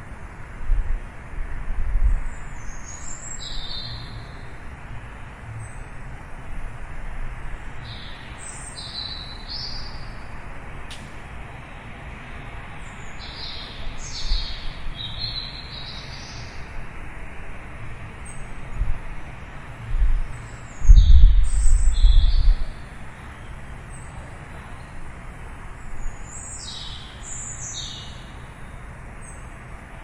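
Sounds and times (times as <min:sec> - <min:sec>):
background hiss and rumble: 0:00.0 - 0:30.0
small birds chirping: 0:02.1 - 0:04.6, 0:07.6 - 0:10.4, 0:12.7 - 0:16.8, 0:18.2 - 0:29.6.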